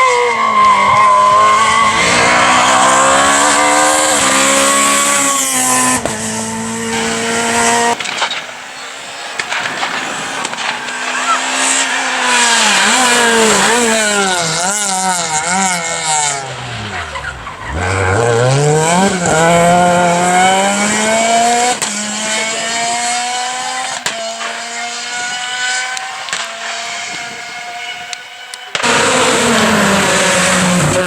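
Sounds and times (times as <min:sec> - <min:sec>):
rally car engine revving: 0:00.0 - 0:31.0
sharp cracks: 0:06.9 - 0:14.6, 0:26.2 - 0:26.8.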